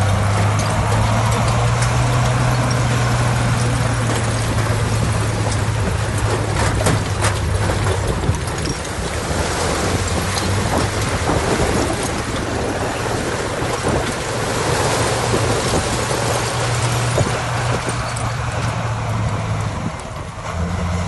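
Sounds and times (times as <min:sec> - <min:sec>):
clicks and crackles: 0:00.0 - 0:14.4
diesel engine hum: 0:00.0 - 0:21.0
machinery rumbling: 0:00.0 - 0:21.0.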